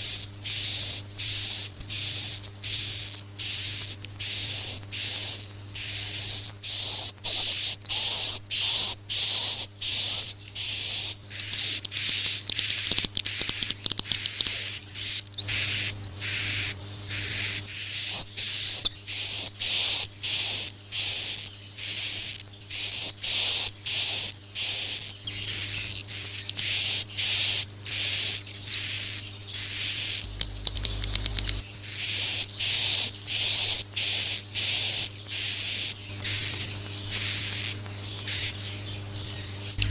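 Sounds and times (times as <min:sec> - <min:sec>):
high hissy bird chirps: 0:00.0 - 0:39.9
faint low hum: 0:23.8 - 0:39.9.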